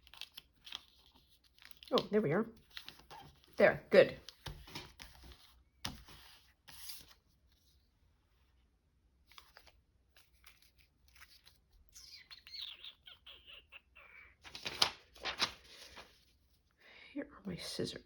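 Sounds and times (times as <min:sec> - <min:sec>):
paper rustling: 0:00.0 - 0:03.6, 0:04.2 - 0:07.8, 0:09.2 - 0:11.9, 0:14.4 - 0:16.6.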